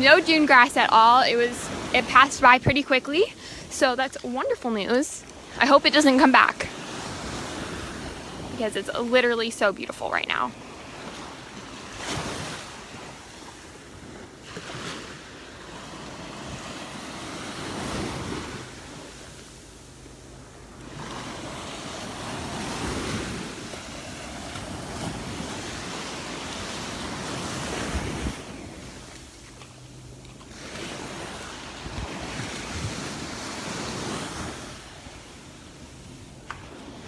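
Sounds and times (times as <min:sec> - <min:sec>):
wind buffeting microphone: 0:00.0 - 0:10.4, 0:21.4 - 0:29.1, 0:30.6 - 0:35.2
surf breaking on beach: 0:00.0 - 0:19.7, 0:20.8 - 0:29.4, 0:30.5 - 0:37.0.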